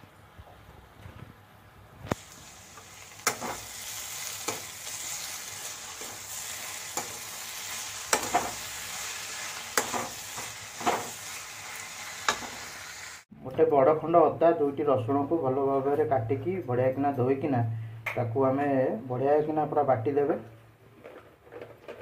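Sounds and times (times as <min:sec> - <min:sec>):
vegetables sizzling in oil: 0:02.1 - 0:13.3
metal spatula scraping pan: 0:03.2 - 0:11.2.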